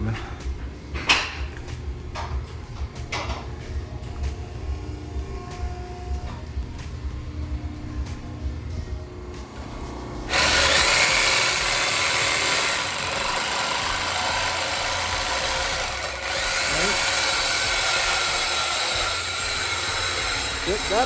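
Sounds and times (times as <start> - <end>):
power tool cutting steel pipe: 10.3 - 21.0.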